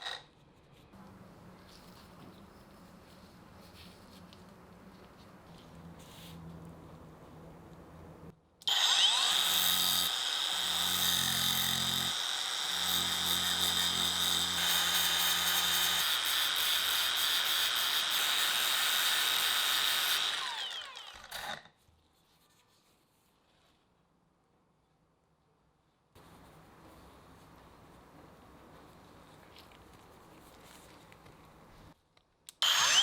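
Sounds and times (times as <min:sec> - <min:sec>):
power tool whining: 0:08.6 - 0:21.7, 0:32.6 - 0:33.0.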